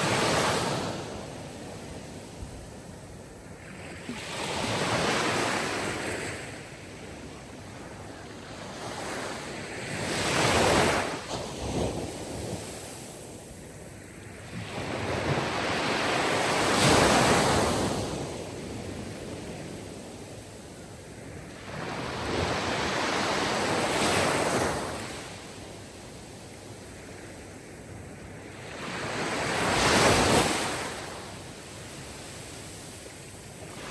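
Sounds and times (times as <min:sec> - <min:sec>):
waves washing in: 0:00.0 - 0:01.2.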